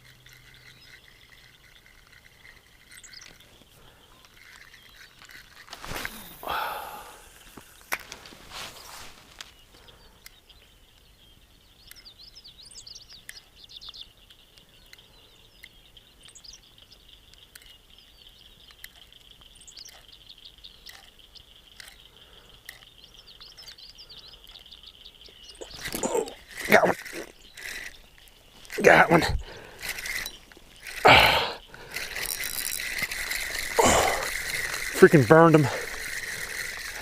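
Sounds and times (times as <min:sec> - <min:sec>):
high-pitched insect drone: 0:00.0 - 0:08.0, 0:20.8 - 0:37.0
birds chirping: 0:00.0 - 0:37.0
faint clicks: 0:13.0 - 0:37.0.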